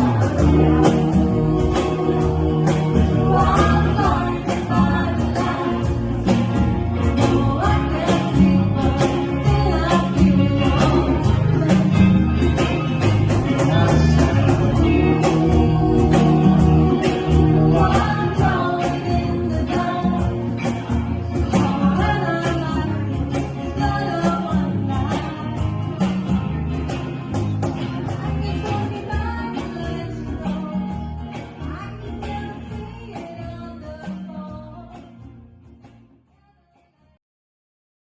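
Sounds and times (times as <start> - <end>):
person singing: 0.0 - 26.4
steady drum beat: 0.0 - 26.6
bass: 0.0 - 37.2.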